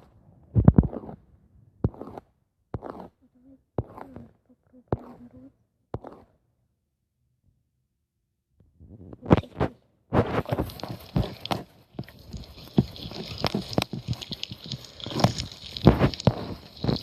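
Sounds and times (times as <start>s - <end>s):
slime clicking and squelching: 10.2s - 17.0s.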